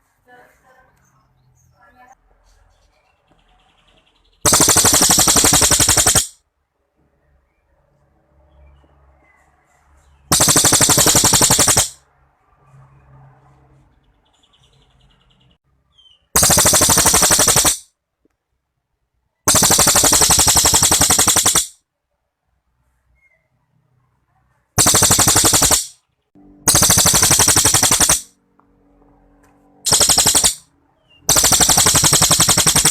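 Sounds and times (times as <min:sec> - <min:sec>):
songbird rattling trills: 0:04.4 - 0:06.4, 0:10.3 - 0:12.0, 0:16.4 - 0:17.8, 0:24.8 - 0:26.0, 0:26.7 - 0:28.3, 0:29.9 - 0:30.6, 0:31.2 - 0:32.9.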